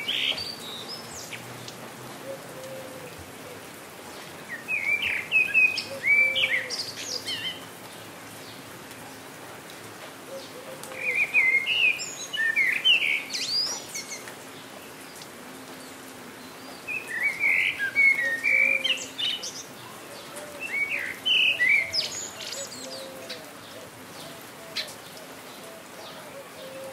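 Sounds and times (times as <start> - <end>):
rain hiss: 0.0 - 26.9
songbird singing: 0.0 - 26.9.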